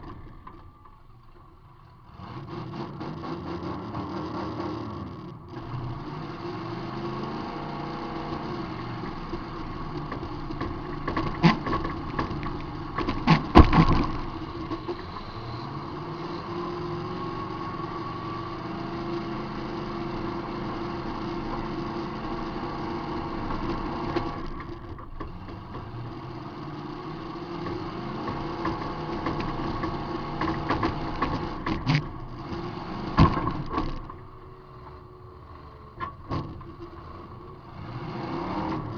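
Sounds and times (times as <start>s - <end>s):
car engine revving: 0.0s - 38.9s
car crash impacts: 10.1s - 15.6s.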